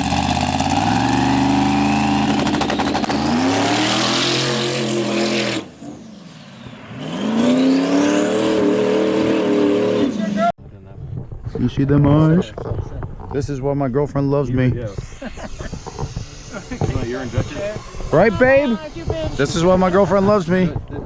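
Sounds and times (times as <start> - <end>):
drag car engine accelerating: 0.0 - 10.5
turbo whistle: 0.8 - 3.8.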